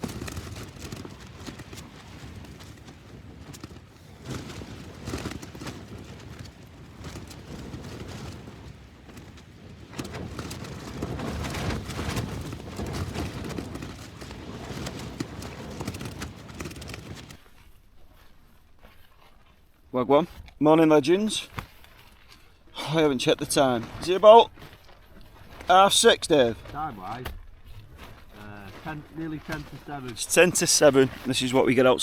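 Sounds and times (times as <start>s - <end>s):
tent fabric flapping and snapping: 0.0s - 20.6s, 21.4s - 32.0s
wind gusts buffeting tent: 0.0s - 32.0s.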